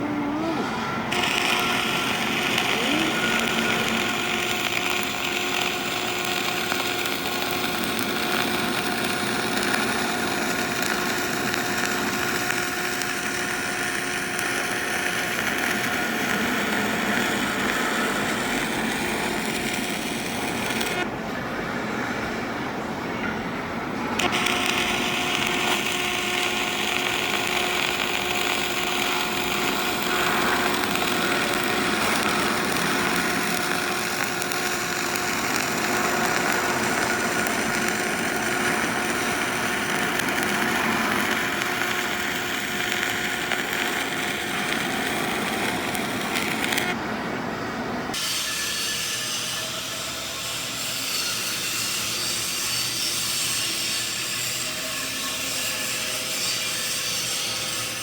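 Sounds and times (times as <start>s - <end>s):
power tool whining: 0.0s - 21.1s, 24.2s - 47.0s.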